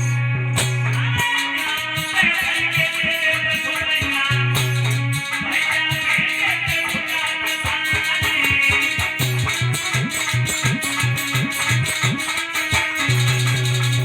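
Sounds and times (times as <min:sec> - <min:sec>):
repeated bass notes: 0:00.0 - 0:01.2.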